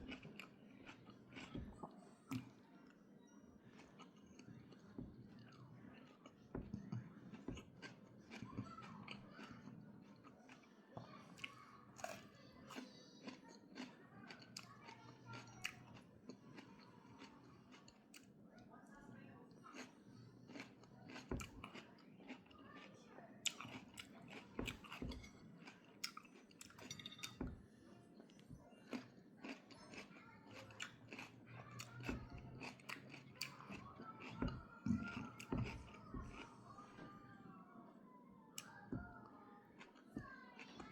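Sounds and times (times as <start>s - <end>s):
person chewing crunchy food: 0.0s - 2.6s, 12.0s - 18.3s, 19.7s - 26.9s, 28.8s - 36.7s.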